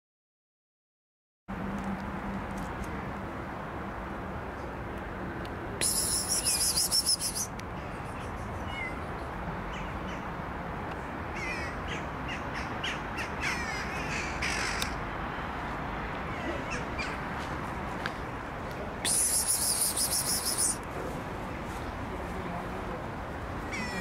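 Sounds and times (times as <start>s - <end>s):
short harsh bird calls: 5.8s - 9.0s, 19.1s - 20.8s.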